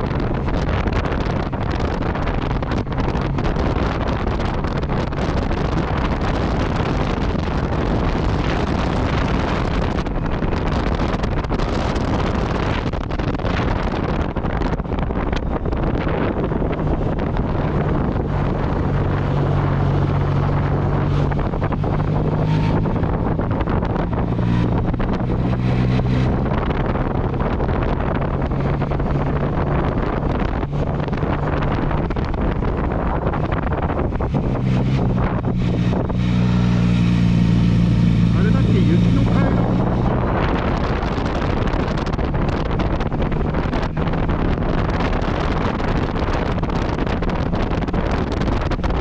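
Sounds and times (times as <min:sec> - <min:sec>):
heavy wind noise: 0:00.0 - 0:49.0
motorcycle engine running: 0:00.0 - 0:49.0.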